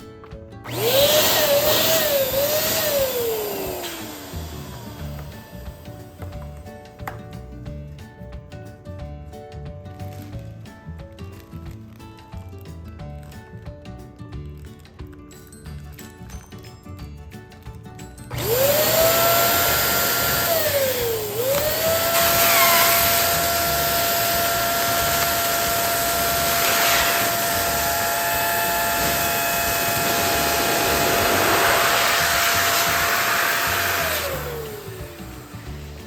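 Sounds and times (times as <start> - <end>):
balloon inflator motor whine: 0.6 - 6.4, 18.3 - 36.0
rush of air: 28.6 - 34.9.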